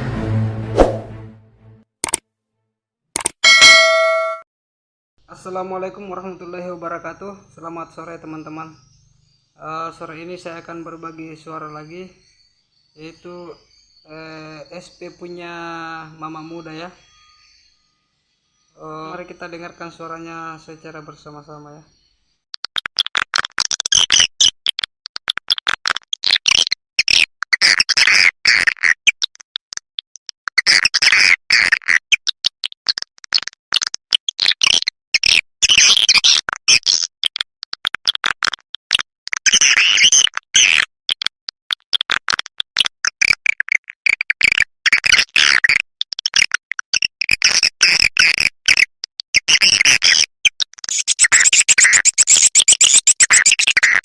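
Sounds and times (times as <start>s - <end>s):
swiftlet clicks and twittering chirps: 21.9s - 54.0s.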